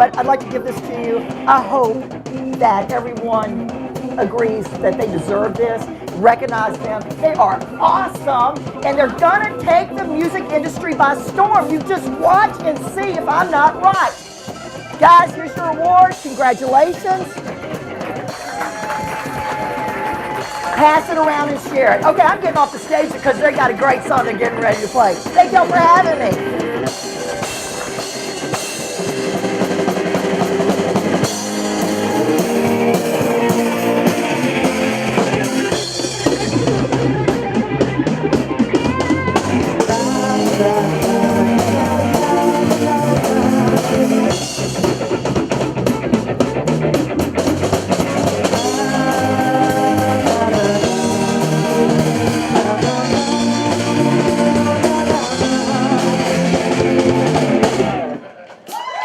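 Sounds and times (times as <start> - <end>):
keyboard: 0.0 - 58.4
bass: 0.0 - 59.0
drum kit: 0.0 - 59.0
electric guitar: 0.0 - 59.0
person singing: 38.7 - 44.7, 48.4 - 58.3.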